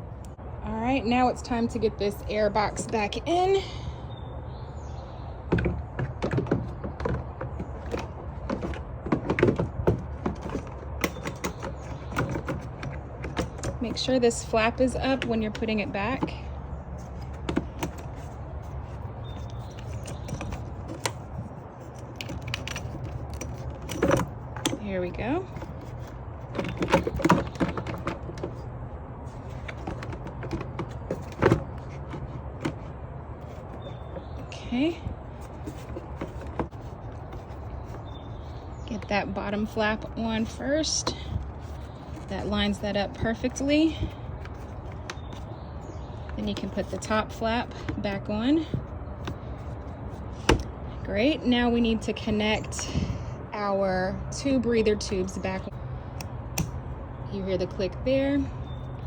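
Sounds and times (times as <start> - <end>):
plastic box knocking and clunking: 5.5 - 14.1, 17.2 - 18.3, 25.5 - 28.6, 29.4 - 34.5, 35.1 - 38.6.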